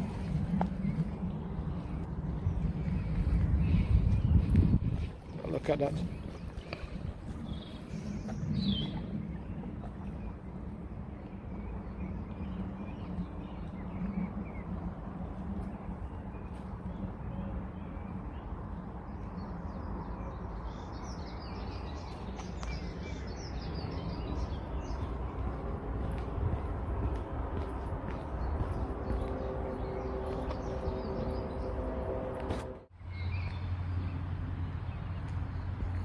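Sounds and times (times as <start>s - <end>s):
low outdoor rumble: 0.0s - 36.0s
small birds chirping: 15.6s - 32.3s.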